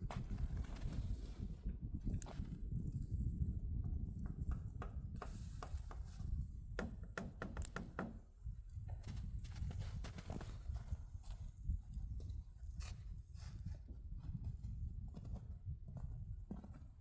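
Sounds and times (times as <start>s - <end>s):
irregular knocks and clicks: 6.8s - 8.2s.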